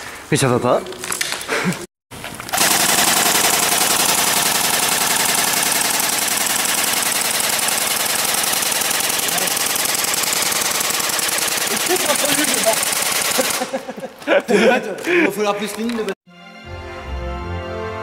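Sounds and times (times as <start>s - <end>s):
airsoft guns firing full auto: 2.5s - 13.8s.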